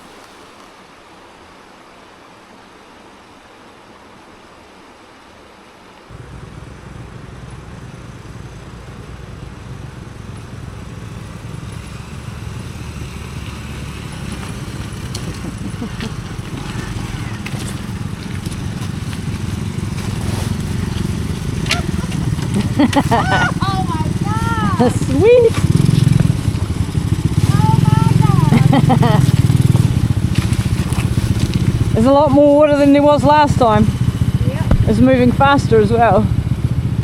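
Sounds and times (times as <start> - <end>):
even hiss: 0.0 - 2.0
motorcycle engine running: 6.1 - 37.0.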